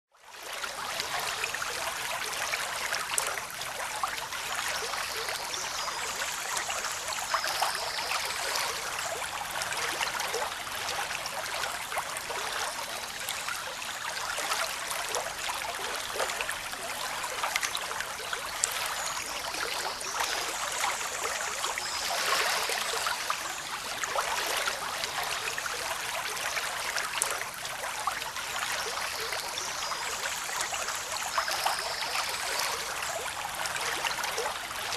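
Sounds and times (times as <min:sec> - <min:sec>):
water splashing and trickling: 0:00.2 - 0:34.9.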